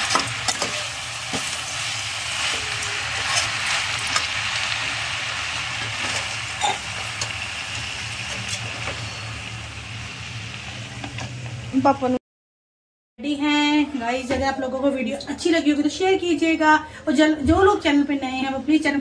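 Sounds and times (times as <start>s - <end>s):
chicken sizzling in sauce: 0.0s - 11.9s.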